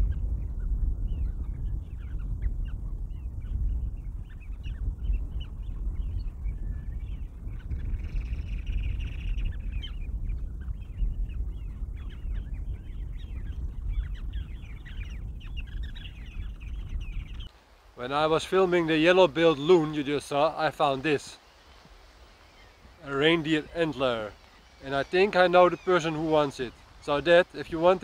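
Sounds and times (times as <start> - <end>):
steady low rumble: 0.0 - 17.5
many birds calling: 0.0 - 28.0.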